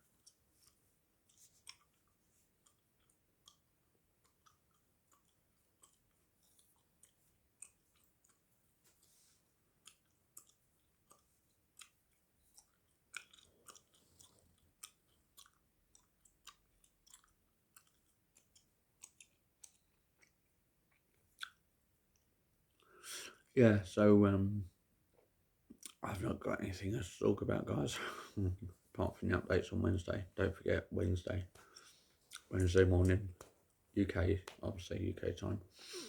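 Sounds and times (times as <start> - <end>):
mouth clicks chewing gum: 0.2 - 9.2, 9.8 - 22.9, 31.5 - 33.6.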